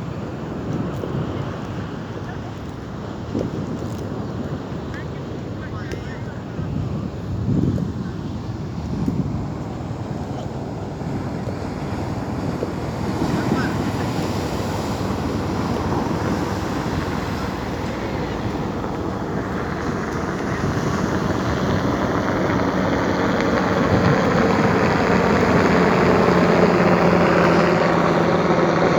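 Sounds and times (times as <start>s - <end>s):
sea surf: 0.0s - 28.9s
wind buffeting microphone: 0.0s - 28.9s
engine drone: 9.7s - 28.9s.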